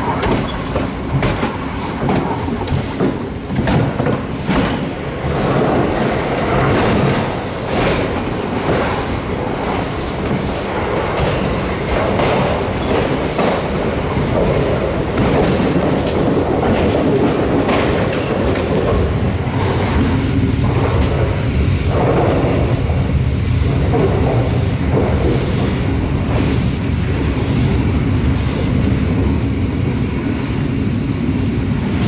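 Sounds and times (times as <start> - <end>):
wheels clattering over rail joints: 0.0 - 23.1
train wheels rumbling on rail: 0.0 - 32.0.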